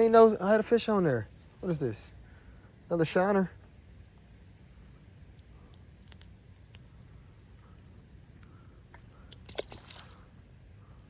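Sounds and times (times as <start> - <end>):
insect chorus trilling: 0.0 - 11.0
faint ticks: 3.6 - 10.9.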